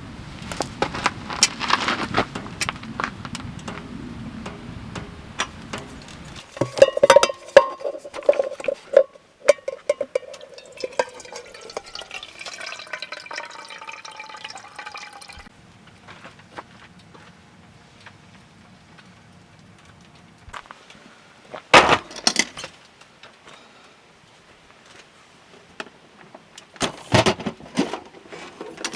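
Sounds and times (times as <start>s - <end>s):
cookware clinking and knocking: 4.5s - 15.5s
liquid pouring into container: 6.5s - 15.5s.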